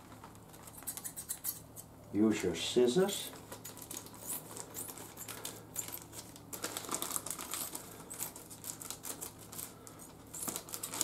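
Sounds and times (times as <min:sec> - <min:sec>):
plastic sheet crinkling: 0:03.2 - 0:11.0.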